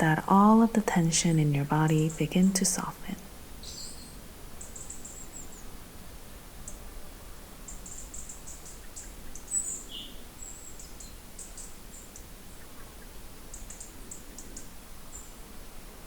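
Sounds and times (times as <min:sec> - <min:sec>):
faint background hiss: 0:00.0 - 0:16.0
small birds chirping: 0:03.6 - 0:05.7, 0:07.7 - 0:15.3.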